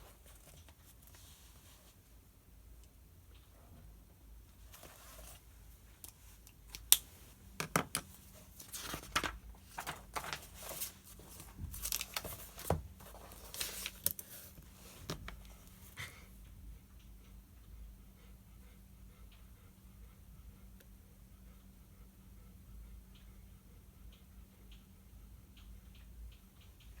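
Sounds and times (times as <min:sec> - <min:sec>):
paper rustling: 0:08.3 - 0:15.6.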